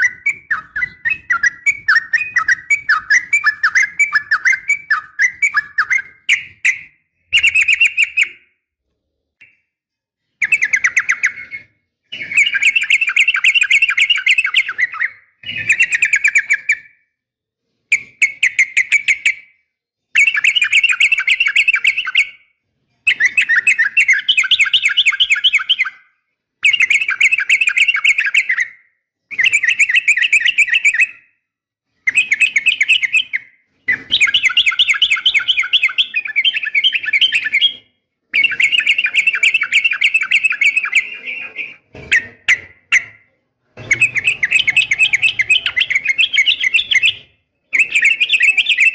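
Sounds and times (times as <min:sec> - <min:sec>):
bulbul chattering call: 0:43.8 - 0:47.2.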